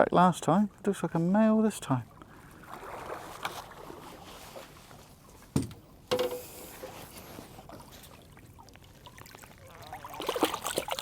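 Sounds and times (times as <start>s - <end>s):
water sloshing against a boat: 0.1s - 11.0s.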